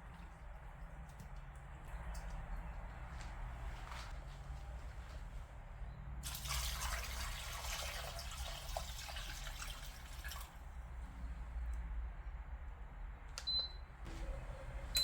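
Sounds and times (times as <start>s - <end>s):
water running into sink: 6.2s - 10.5s.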